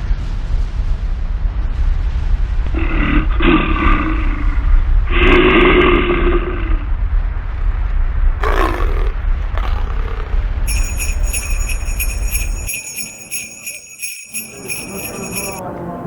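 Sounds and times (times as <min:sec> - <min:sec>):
jingle bells shaken: 0:09.6 - 0:15.6.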